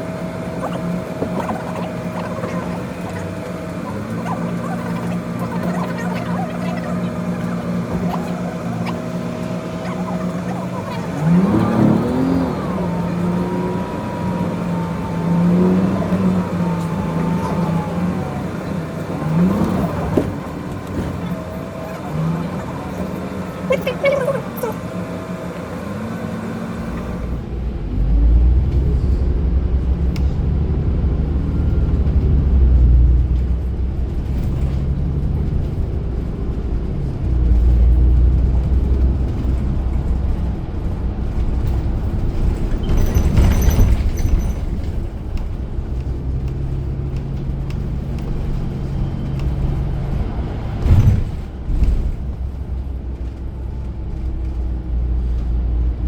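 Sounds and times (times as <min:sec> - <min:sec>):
bus engine running: 0:00.0 - 0:56.0
road noise rumble: 0:00.0 - 0:56.0.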